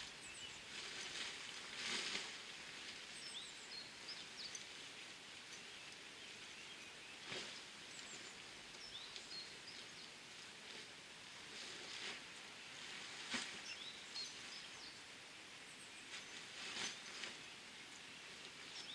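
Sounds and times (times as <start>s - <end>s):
outdoor background hiss: 0.0s - 18.9s
rustle: 0.0s - 18.9s.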